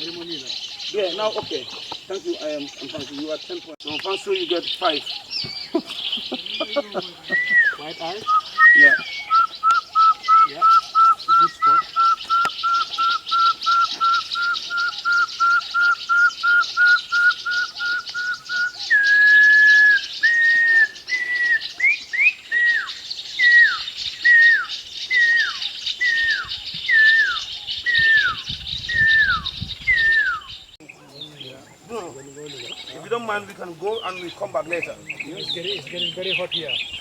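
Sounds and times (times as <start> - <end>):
clear whistles: 7.3 - 30.6.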